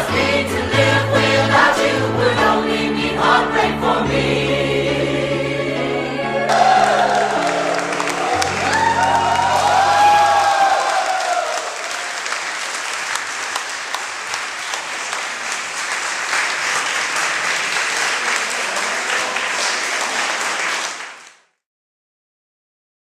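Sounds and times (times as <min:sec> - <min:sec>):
audience applauding: 0:06.5 - 0:21.5.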